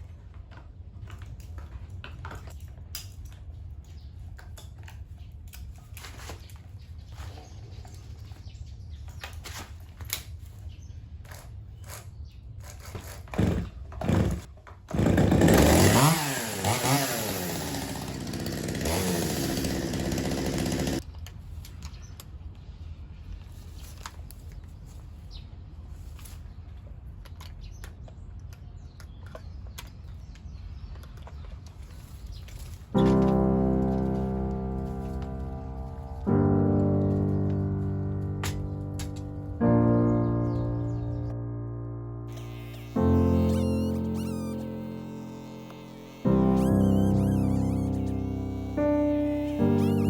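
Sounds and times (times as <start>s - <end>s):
chainsaw revving: 13.2s - 21.0s, 33.0s - 36.3s, 42.3s - 50.0s.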